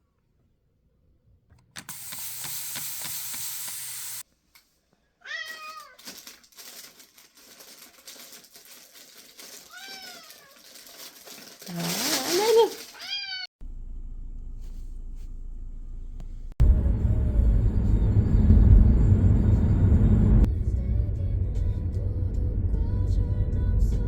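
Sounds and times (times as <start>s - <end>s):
steady hiss: 1.8s - 4.2s
cat meowing: 5.2s - 6.0s, 9.7s - 10.6s, 13.0s - 13.5s.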